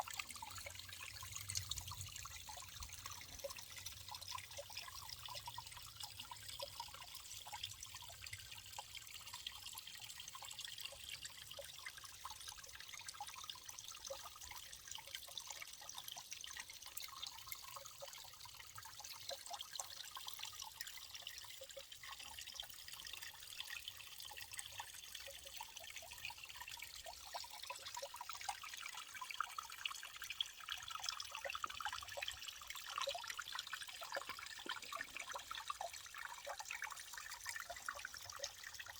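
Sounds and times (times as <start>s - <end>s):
water trickling: 0.0s - 38.9s
water dripping and splashing: 31.0s - 38.9s.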